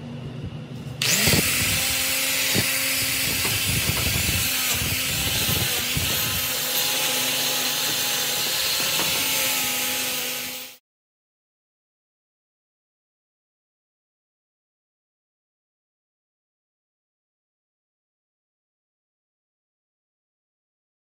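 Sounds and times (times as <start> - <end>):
power tool motor running: 1.0 - 10.8.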